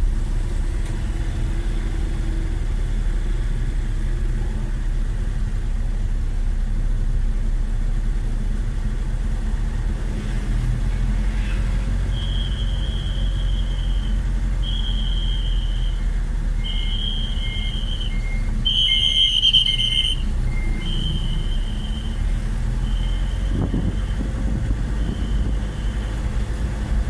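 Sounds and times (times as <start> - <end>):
vehicle engine rumbling: 0.0 - 27.0
high steady beep: 12.2 - 22.2.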